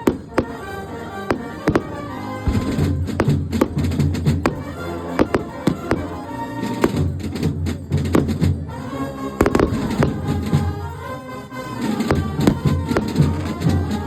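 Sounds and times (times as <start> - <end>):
sustained wind instrument notes: 0.0 - 14.0
sharp bangs: 1.3 - 8.7, 9.4 - 11.0, 11.8 - 14.0
heavy drumming: 1.7 - 8.8, 9.4 - 11.0, 11.8 - 14.0.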